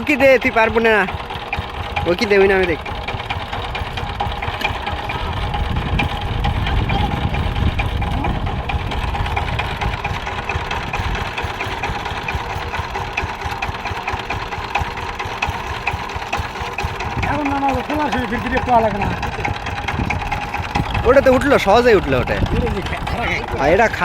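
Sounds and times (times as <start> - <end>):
diesel engine knocking: 0.0 - 24.0.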